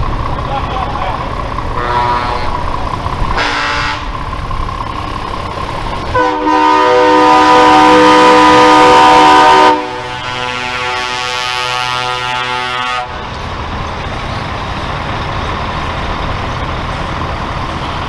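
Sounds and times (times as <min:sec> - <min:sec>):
truck engines rumbling: 0:00.0 - 0:18.0
truck air horns: 0:01.7 - 0:04.2, 0:06.1 - 0:13.2.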